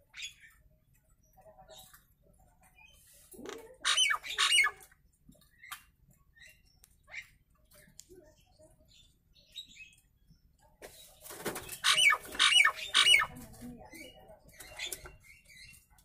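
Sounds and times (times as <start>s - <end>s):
myna calling and whistling: 11.7s - 13.4s.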